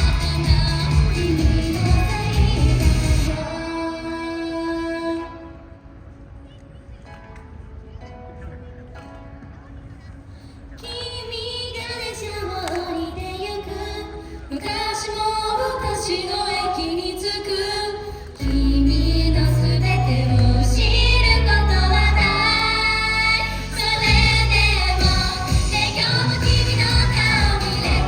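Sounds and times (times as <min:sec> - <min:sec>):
heavy bass and beat: 0:00.0 - 0:03.4, 0:24.0 - 0:28.0
woman singing pop song: 0:00.0 - 0:05.6, 0:10.8 - 0:28.0.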